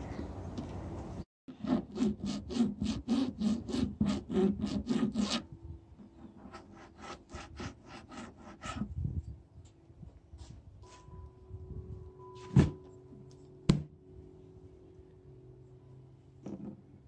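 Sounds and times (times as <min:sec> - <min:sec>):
hand file rasping on plastic: 0:01.5 - 0:08.9.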